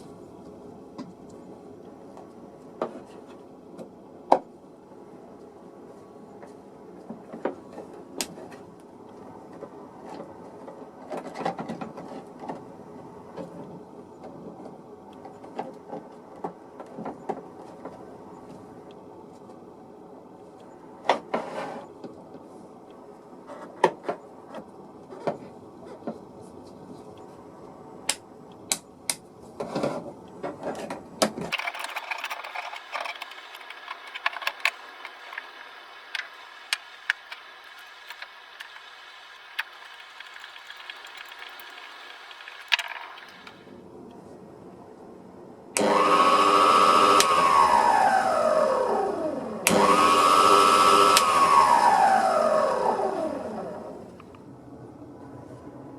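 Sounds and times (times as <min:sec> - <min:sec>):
small tools clicking and knocking: 0:30.5 - 0:35.5.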